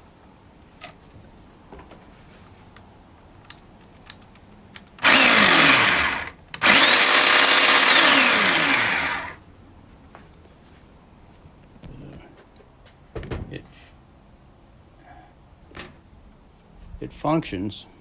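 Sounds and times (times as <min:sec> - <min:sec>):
electric chainsaw running: 0:05.0 - 0:09.4.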